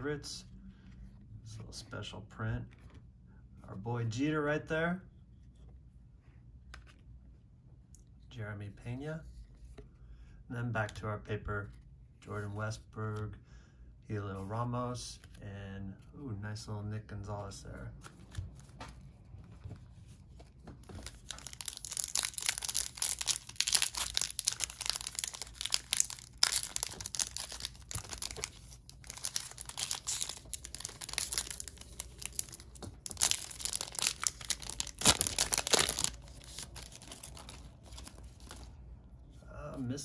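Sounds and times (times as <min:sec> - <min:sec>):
wrapper crinkling: 0:20.9 - 0:38.7.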